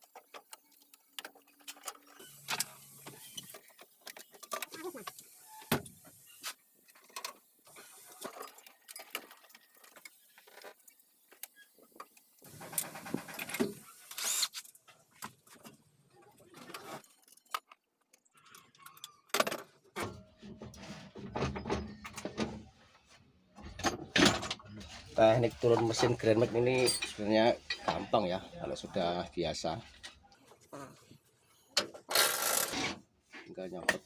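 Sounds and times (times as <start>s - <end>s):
metal tools and bolts clinking: 25.9s - 27.9s.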